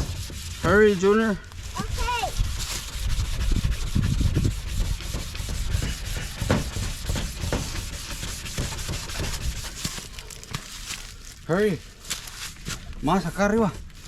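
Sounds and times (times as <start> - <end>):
wet sanding plastic: 0.0 - 11.1.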